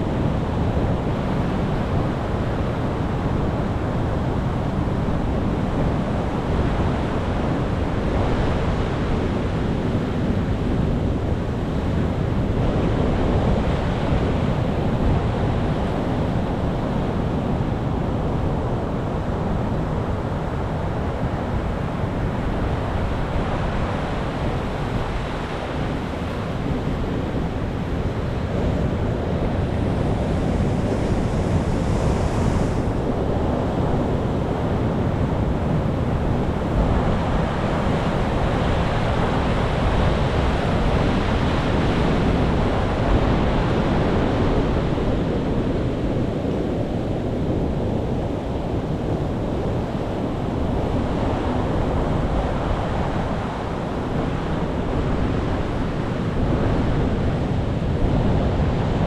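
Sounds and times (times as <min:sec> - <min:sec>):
wind on microphone: 0:00.0 - 0:59.0
ocean waves breaking: 0:21.9 - 0:44.8.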